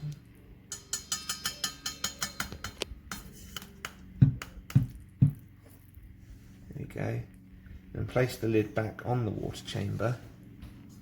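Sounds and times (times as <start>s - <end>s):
louder knocks on a mug: 4.2s - 5.4s.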